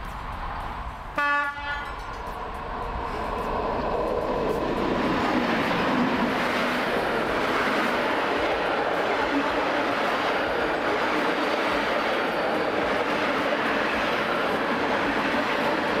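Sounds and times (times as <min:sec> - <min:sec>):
train rumble and wheel noise: 0:00.0 - 0:16.0
train horn: 0:01.1 - 0:02.0.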